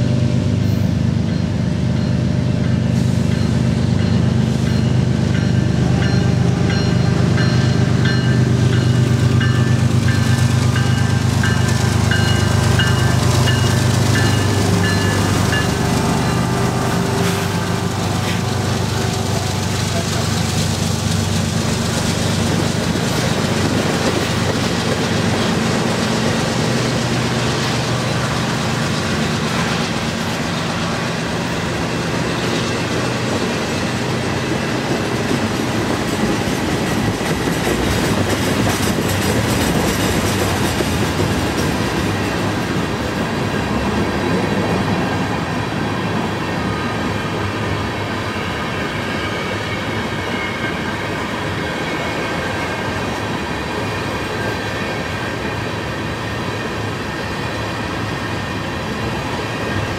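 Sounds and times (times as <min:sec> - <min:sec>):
locomotive engine drone: 0:00.0 - 0:59.9
train wheels clacking: 0:00.6 - 0:45.6.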